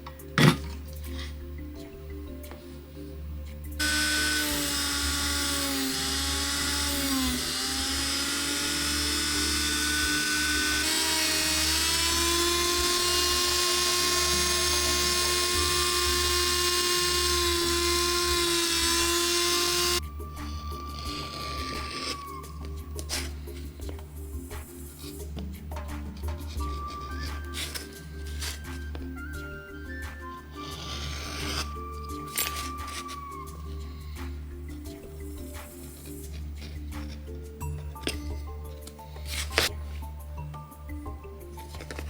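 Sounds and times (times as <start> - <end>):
electric rotary tool whining: 3.8 - 23.6, 26.6 - 29.0, 30.2 - 33.6.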